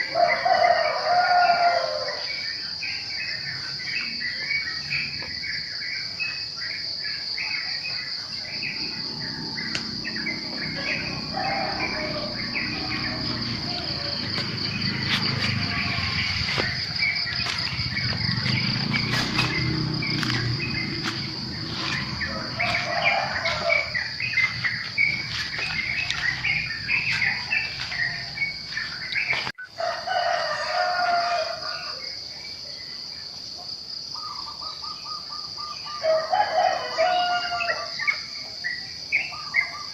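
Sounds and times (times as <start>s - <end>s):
insect trill: 0.0s - 39.9s
small birds chirping: 2.1s - 29.7s
low rumble: 8.6s - 29.3s.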